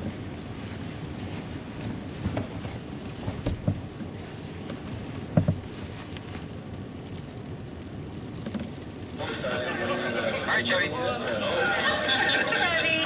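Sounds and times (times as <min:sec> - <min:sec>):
rain and snow hitting camper shell: 0:00.0 - 0:13.0.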